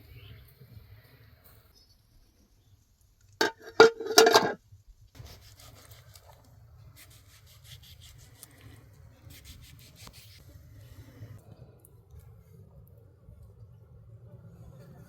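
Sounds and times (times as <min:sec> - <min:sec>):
scraping strokes: 0:03.4 - 0:04.6.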